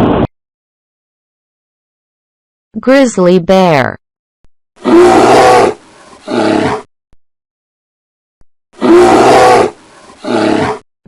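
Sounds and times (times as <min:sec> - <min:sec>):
bear roaring: 0:04.8 - 0:06.9, 0:08.8 - 0:10.8.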